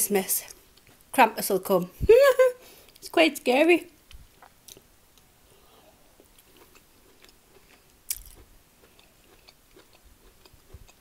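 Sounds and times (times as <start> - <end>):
woman chewing: 5.6 - 11.0.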